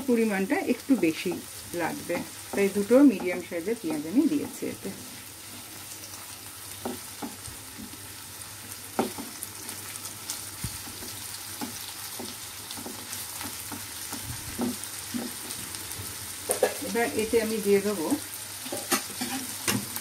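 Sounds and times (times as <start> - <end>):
vegetables sizzling in oil: 0.0 - 20.0
spatula scraping and tapping pan: 0.8 - 1.5, 2.3 - 4.8, 6.8 - 8.0, 8.9 - 9.4, 10.6 - 15.6, 16.4 - 16.9, 18.6 - 19.9.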